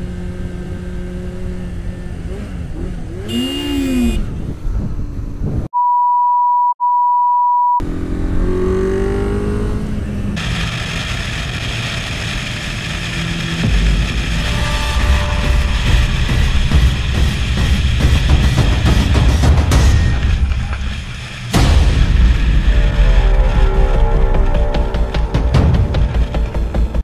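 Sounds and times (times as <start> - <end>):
motorcycle engine revving: 0.0 - 5.5, 7.8 - 27.0
high censor bleep: 5.7 - 7.8.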